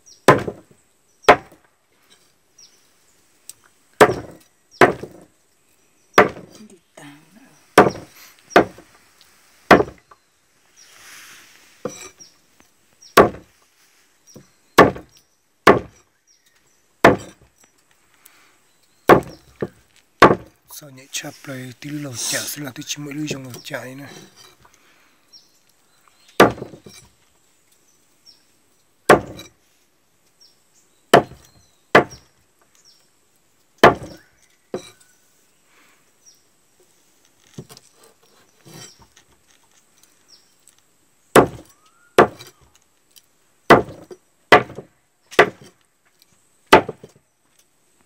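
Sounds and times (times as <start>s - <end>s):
chopping strikes: 0.3s - 0.6s, 1.3s - 1.6s, 4.0s - 5.3s, 6.2s - 6.6s, 7.8s - 8.9s, 9.7s - 10.0s, 13.2s - 13.5s, 14.8s - 16.0s, 17.0s - 17.4s, 19.1s - 20.5s, 26.4s - 26.9s, 29.1s - 29.5s, 31.1s - 31.4s, 32.0s - 32.2s, 33.8s - 34.2s, 41.4s - 42.5s, 43.7s - 45.8s, 46.7s - 47.1s.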